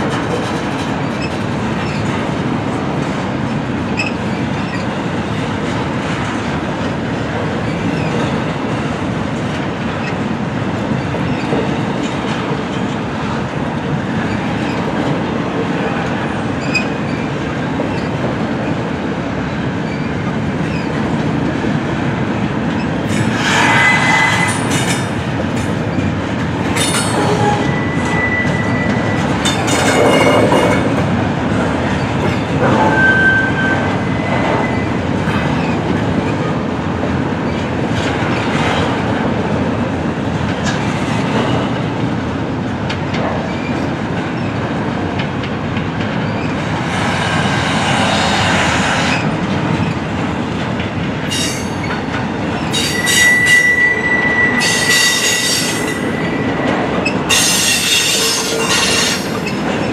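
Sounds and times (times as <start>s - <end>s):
freight train rumble and wheel clatter: 0.0s - 59.9s
steel wheel squeals: 23.1s - 25.0s, 26.8s - 30.6s, 32.4s - 35.8s, 52.6s - 59.9s.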